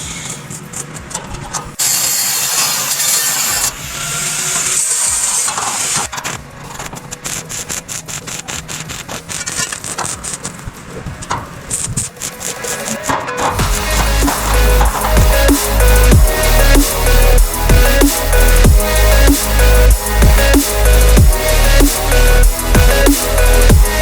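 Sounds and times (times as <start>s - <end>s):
power tool cutting: 1.8s - 10.6s.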